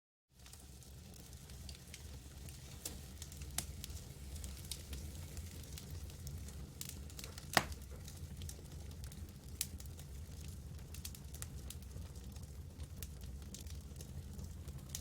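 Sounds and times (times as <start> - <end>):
campfire crackling and popping: 0.4 - 15.0.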